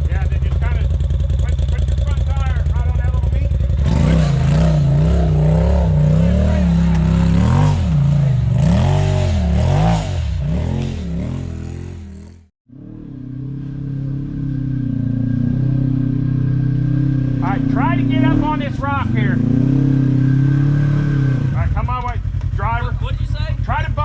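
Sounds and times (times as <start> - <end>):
off-road vehicle engine revving: 0.0 - 24.0.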